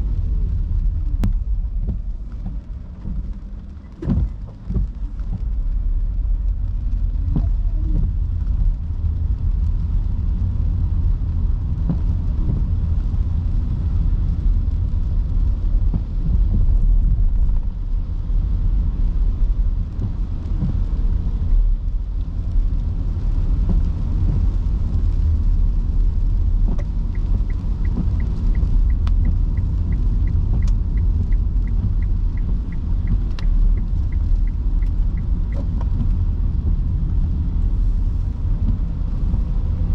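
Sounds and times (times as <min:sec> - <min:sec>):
road and tyre rumble: 0:00.0 - 0:39.9
turn signal ticking: 0:23.3 - 0:37.4.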